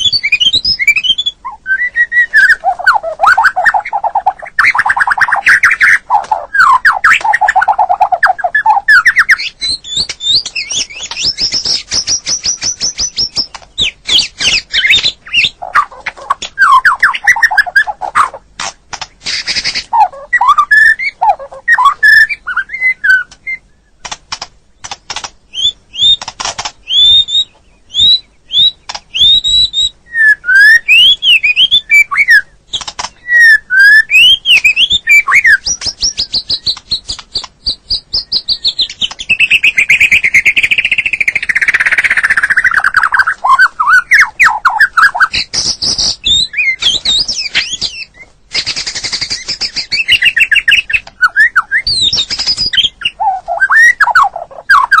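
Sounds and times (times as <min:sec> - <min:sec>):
songbird whistled phrases: 0:00.0 - 0:18.4, 0:19.3 - 0:24.0, 0:25.5 - 0:26.2, 0:26.8 - 0:55.0
bird fast rattling trill: 0:02.4 - 0:18.4, 0:34.1 - 0:55.0
bird sharp clicks: 0:02.4 - 0:22.2, 0:23.1 - 0:29.4, 0:30.9 - 0:55.0.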